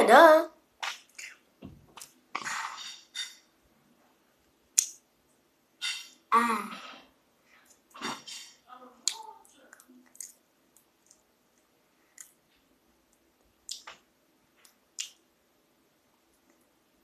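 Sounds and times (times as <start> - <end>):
person chewing food: 9.0 - 13.9.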